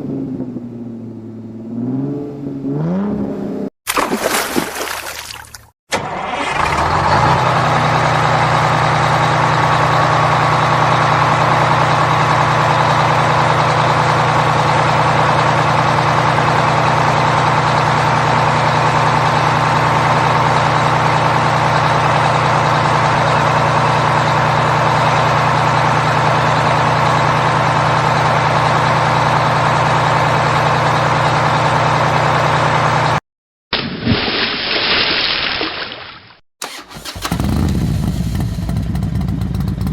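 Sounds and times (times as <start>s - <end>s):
engine sound: 0.0s - 3.7s, 5.9s - 33.2s, 36.6s - 39.9s
heavy vehicle engine idling: 6.3s - 33.2s, 36.6s - 39.9s.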